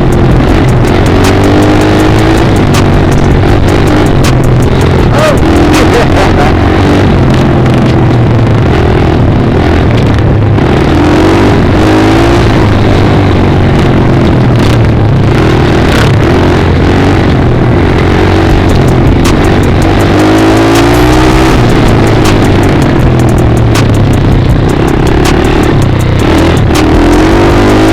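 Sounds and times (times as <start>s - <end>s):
rapid sharp clicks: 0.0s - 6.5s, 18.5s - 27.9s
dirt bike engine revving: 0.0s - 27.9s.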